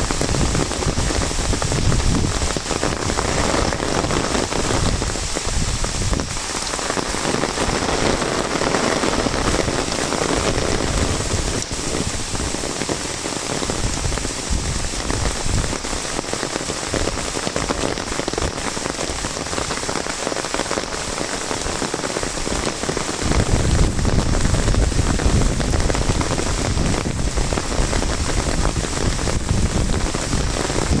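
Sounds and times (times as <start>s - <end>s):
heavy rain on umbrella: 0.0s - 31.0s.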